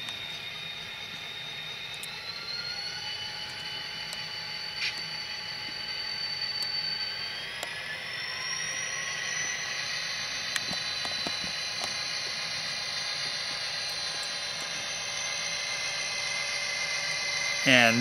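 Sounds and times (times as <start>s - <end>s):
diesel engine through small speaker: 17.0s - 18.0s.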